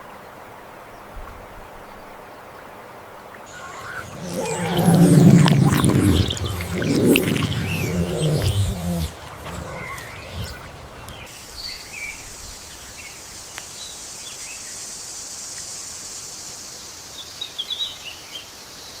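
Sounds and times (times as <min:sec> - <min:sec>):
high insect drone: 0:03.5 - 0:11.3.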